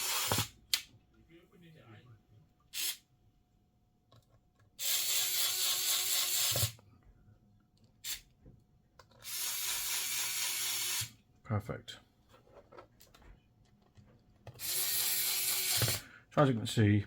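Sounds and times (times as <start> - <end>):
electric screwdriver running: 0.0 - 0.5, 4.8 - 6.8, 9.2 - 11.1, 14.6 - 16.0.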